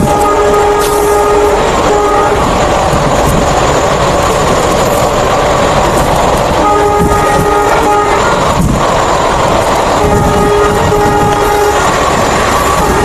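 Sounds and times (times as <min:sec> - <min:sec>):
locomotive horn: 0:00.0 - 0:02.6, 0:06.6 - 0:08.6, 0:09.9 - 0:13.0
train rushing past: 0:00.0 - 0:13.0.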